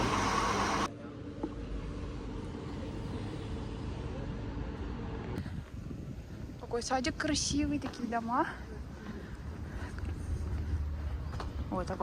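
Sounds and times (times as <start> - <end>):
supermarket hum: 0.0 - 0.9
street ambience rumble: 0.0 - 12.0.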